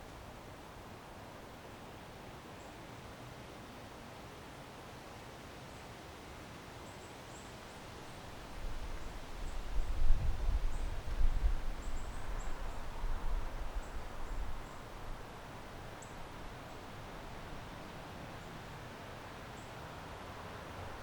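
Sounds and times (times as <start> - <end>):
leaves rustling: 0.0 - 21.0
wind buffeting microphone: 8.6 - 15.2.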